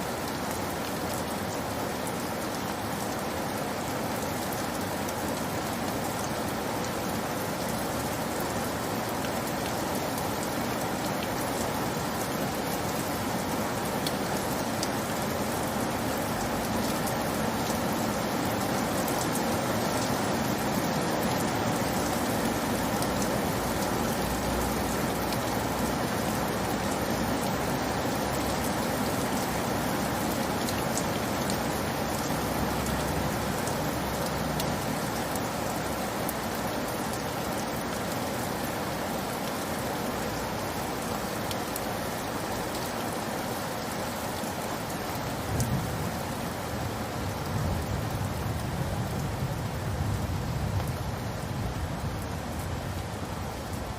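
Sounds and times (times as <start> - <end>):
steady rain hiss: 0.0 - 53.9.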